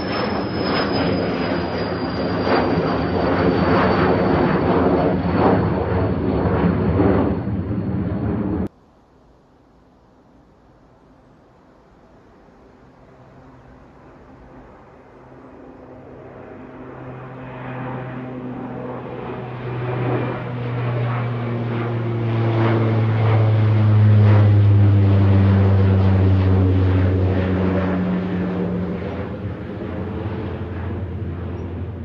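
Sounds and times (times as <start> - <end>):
airliner engines passing by: 0.0 - 32.0.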